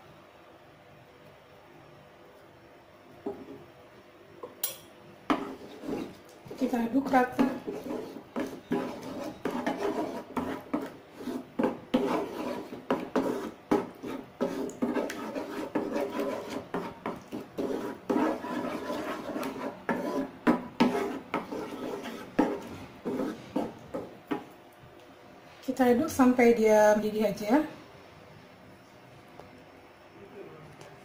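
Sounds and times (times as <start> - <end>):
utensil scraping and knocking a pan: 5.3 - 24.5.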